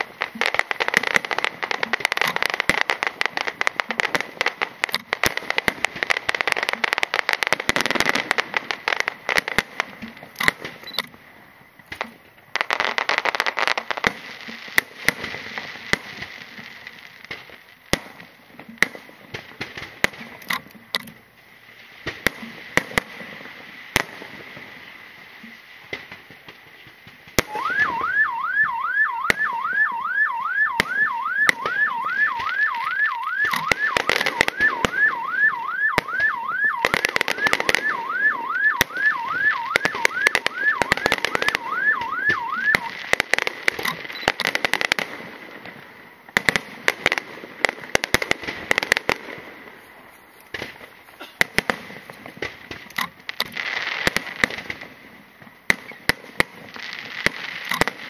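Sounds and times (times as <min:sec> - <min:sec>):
fireworks bangs and crackles: 0:00.0 - 0:58.0
car alarm sweeping: 0:27.4 - 0:44.5.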